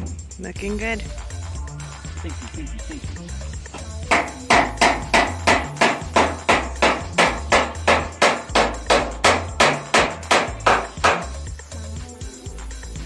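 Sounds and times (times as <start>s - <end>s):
hammer blows: 4.1s - 11.4s.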